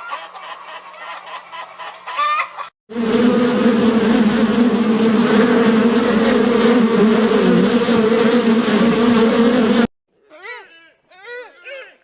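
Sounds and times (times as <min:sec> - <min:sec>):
insects buzzing: 0:02.9 - 0:09.9.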